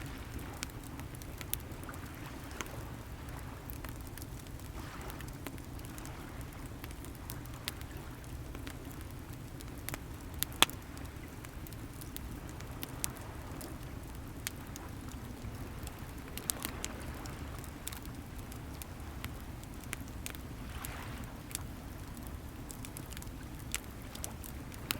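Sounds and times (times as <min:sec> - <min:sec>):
wood fire crackling and popping: 0:00.0 - 0:24.9.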